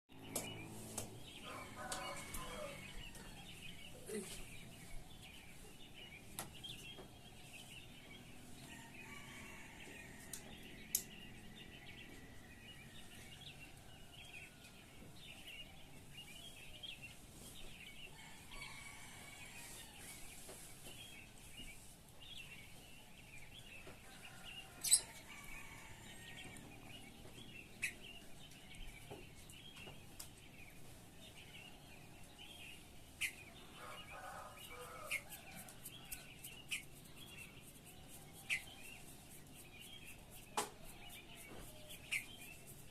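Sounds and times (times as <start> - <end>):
birds chirping and singing: 0.1 - 42.9.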